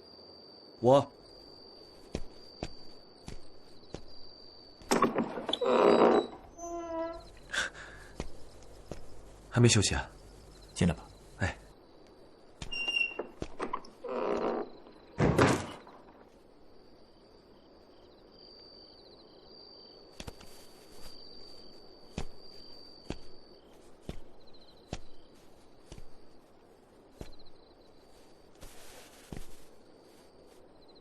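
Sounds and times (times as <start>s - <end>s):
crickets chirping: 0.0s - 31.0s
wooden door shutting: 4.9s - 7.3s, 12.7s - 16.0s.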